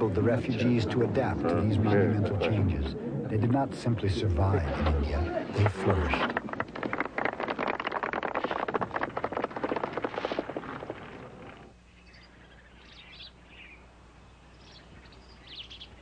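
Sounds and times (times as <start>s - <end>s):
small birds chirping: 11.8s - 16.0s.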